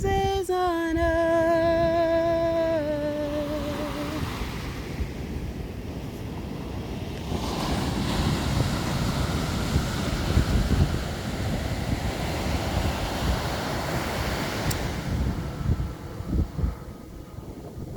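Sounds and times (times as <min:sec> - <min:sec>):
surf: 0:00.0 - 0:16.9
wind buffeting microphone: 0:00.0 - 0:17.9
wind rushing: 0:03.3 - 0:17.9.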